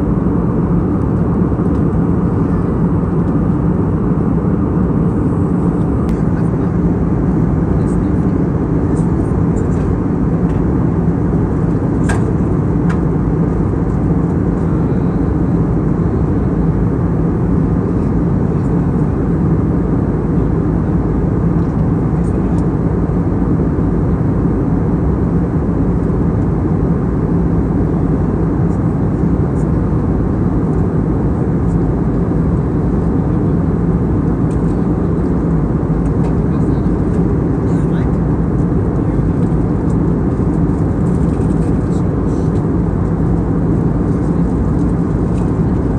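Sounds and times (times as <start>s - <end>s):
aircraft cabin drone: 0.0s - 45.9s.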